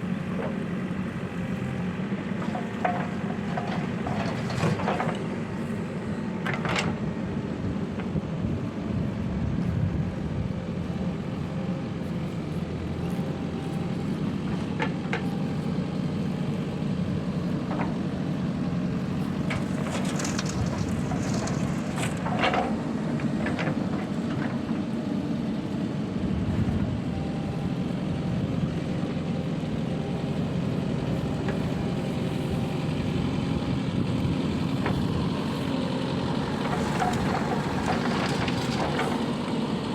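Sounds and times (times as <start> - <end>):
diesel machinery running: 0.0 - 39.9
clanks and knocks: 19.5 - 24.6.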